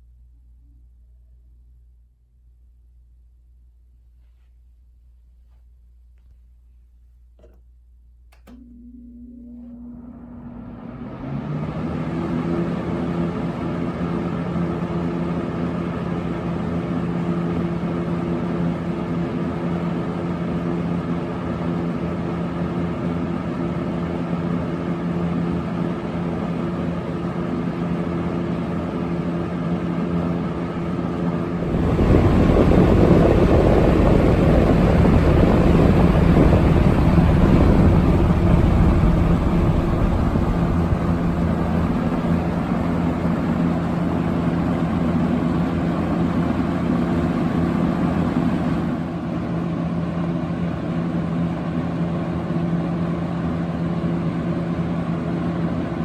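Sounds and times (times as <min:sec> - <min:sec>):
box fan motor humming: 0:30.1 - 0:49.6
air rushing from fan blades: 0:31.0 - 0:49.5.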